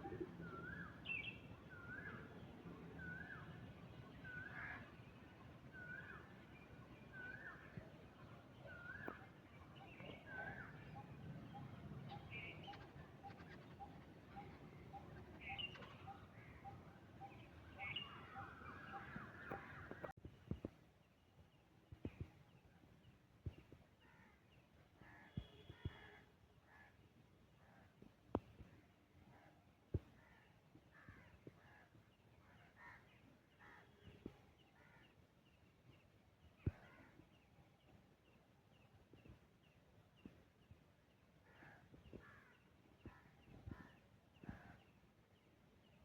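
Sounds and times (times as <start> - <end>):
birds chattering calls: 10.1 - 20.1.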